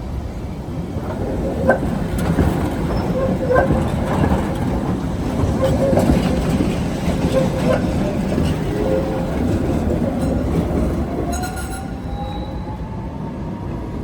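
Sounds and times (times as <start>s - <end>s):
tram rumbling on rails: 0.0s - 14.0s
wheels knocking over rail joints: 1.0s - 11.7s
metallic wheel squeals: 7.2s - 12.8s.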